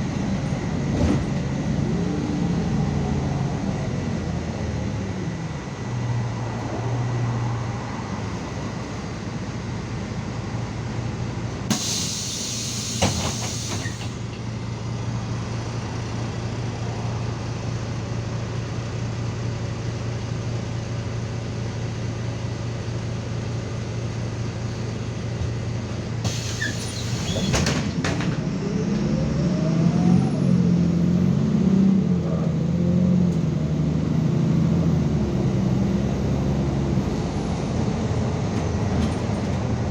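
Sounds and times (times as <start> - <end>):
bus engine idling: 0.0 - 29.2, 30.1 - 39.9
air brake hiss: 11.7 - 14.2, 26.2 - 27.5.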